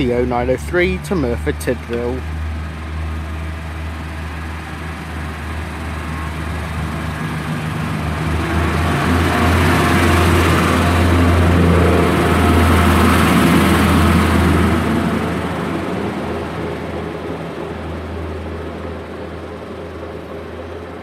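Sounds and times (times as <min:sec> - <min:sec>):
diesel train engine humming: 0:00.0 - 0:21.0.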